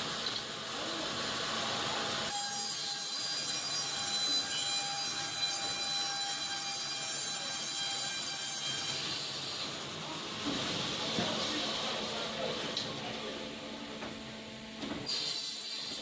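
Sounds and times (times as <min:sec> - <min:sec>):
band saw cutting timber: 0:02.3 - 0:09.9.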